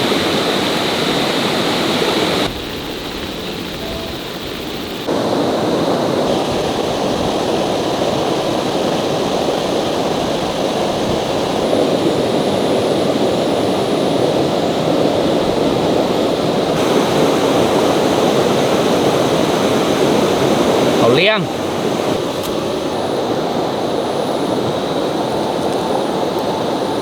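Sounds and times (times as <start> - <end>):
running water rushing: 0.0 - 27.0.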